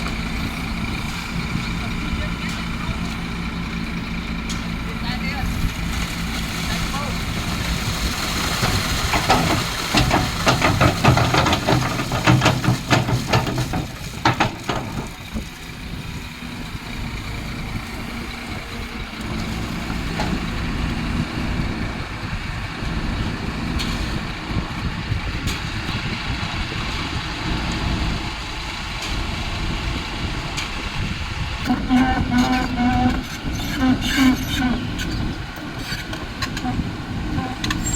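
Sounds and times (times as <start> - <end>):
diesel engine running: 0.0 - 37.9
sharp knocks and rattles: 8.4 - 15.5.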